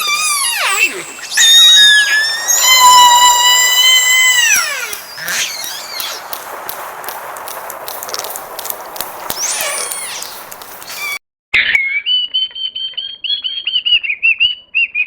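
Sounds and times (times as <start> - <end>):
animal high-pitched calls: 0.0 - 6.4, 9.3 - 11.2.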